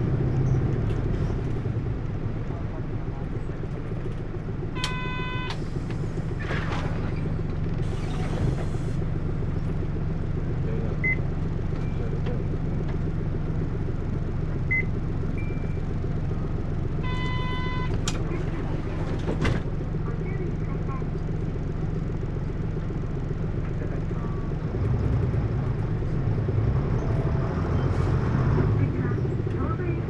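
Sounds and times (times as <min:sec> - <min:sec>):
bus diesel engine drone: 0:00.0 - 0:30.0
faint short beeps: 0:04.8 - 0:05.6, 0:17.0 - 0:18.0.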